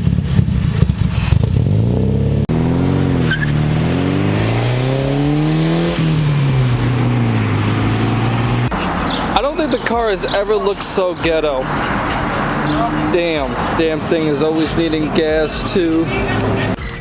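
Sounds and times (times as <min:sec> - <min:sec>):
car engine with rattling exhaust: 0:00.0 - 0:16.8
car revving and pulling away: 0:00.0 - 0:16.8.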